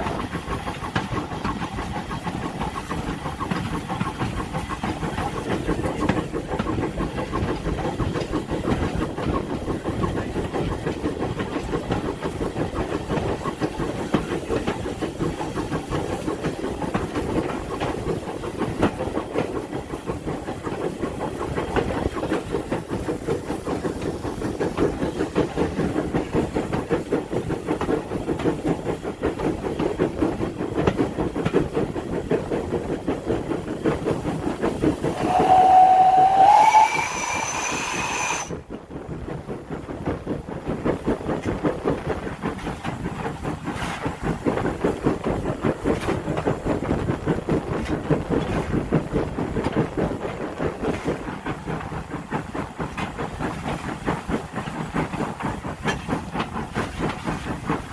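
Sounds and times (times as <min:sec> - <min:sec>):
steam locomotive exhaust beats: 0:00.0 - 0:57.9
steam hissing: 0:33.4 - 0:38.6.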